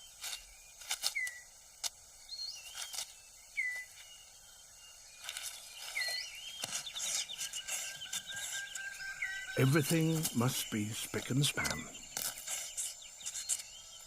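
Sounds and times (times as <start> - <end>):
whistled bird calls: 0.0 - 1.5, 2.2 - 14.0
leaves and twigs rustling: 0.0 - 14.0
clicking bird trill: 11.2 - 12.4.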